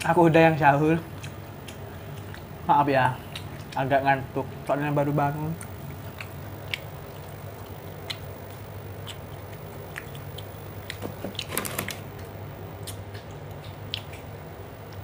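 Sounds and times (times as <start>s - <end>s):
person chewing food: 0.8s - 15.0s
wet mouth clicks: 5.6s - 8.4s, 12.8s - 14.3s.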